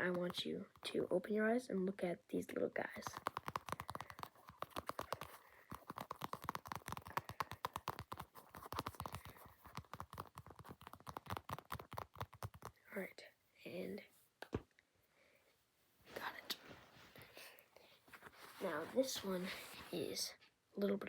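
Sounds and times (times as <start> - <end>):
rapid uneven tapping: 3.0 - 12.8.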